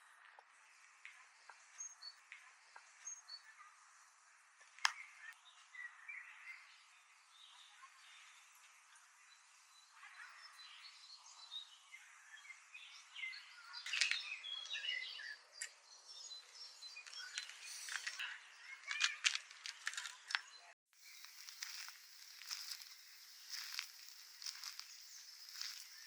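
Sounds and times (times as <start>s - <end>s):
small birds chirping: 0.0s - 26.0s
steady hiss: 21.0s - 26.0s.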